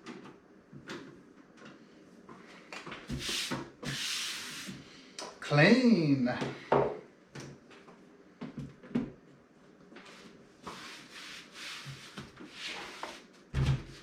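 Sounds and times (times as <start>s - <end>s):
soft rubbing and rustling: 9.6s - 13.5s.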